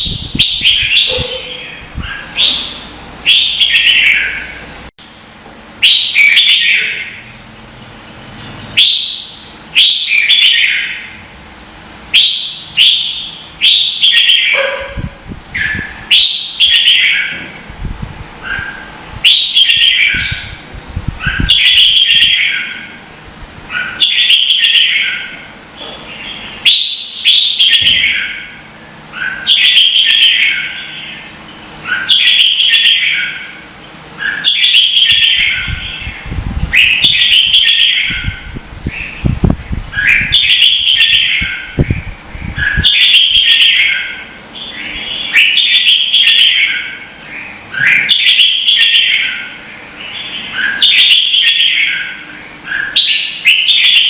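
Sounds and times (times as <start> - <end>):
low rumbling noise: 11.0 - 16.6, 17.2 - 21.9, 35.2 - 45.4.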